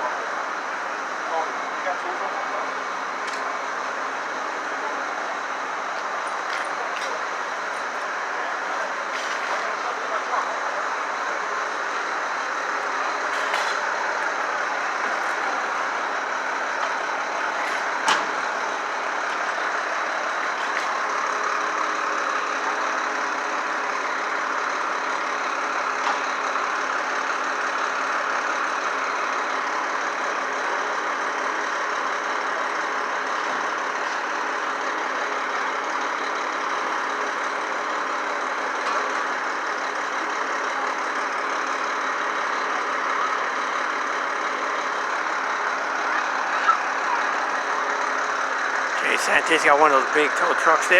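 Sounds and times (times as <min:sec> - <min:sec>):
heavy truck engine idling: 0:00.0 - 0:50.9.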